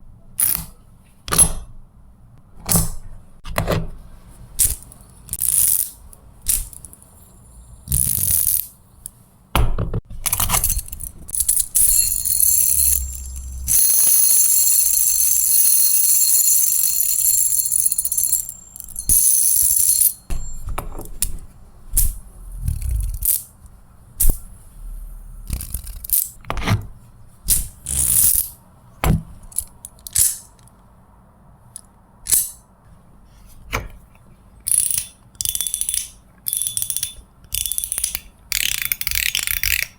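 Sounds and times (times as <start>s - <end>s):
metal spinner whirring: 10.3s - 21.4s.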